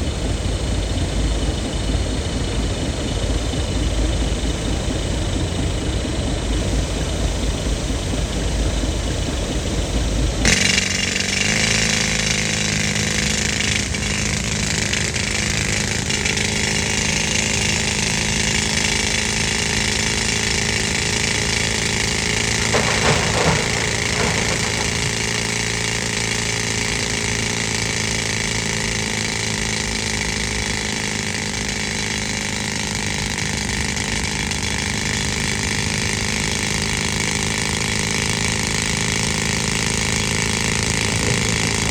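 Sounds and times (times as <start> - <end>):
air compressor engine: 0.0 - 41.9
pneumatic rock drill: 0.0 - 41.9
knocks: 22.5 - 26.0.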